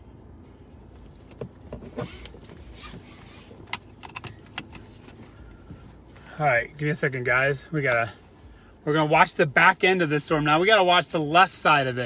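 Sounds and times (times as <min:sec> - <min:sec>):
vehicle cabin rumble: 0:00.0 - 0:12.0.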